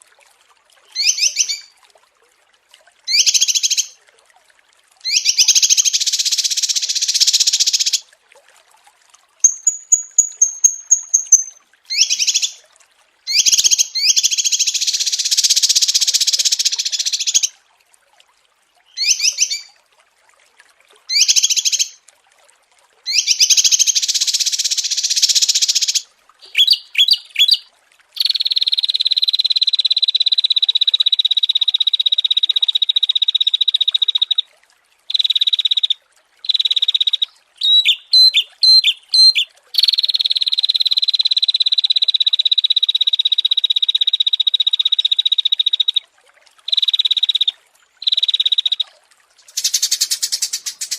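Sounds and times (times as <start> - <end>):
songbirds fast chattering song: 1.0 - 1.7, 5.1 - 8.0, 9.4 - 12.6, 13.3 - 17.5, 23.1 - 27.6, 36.4 - 40.2, 49.5 - 50.9
high thin bird trill: 9.4 - 12.6.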